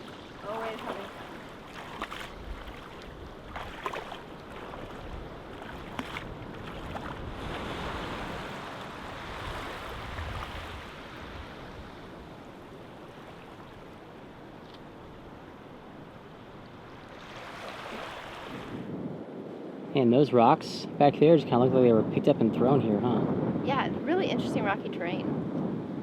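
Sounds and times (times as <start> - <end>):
surf washing onto beach: 0.0 - 13.9.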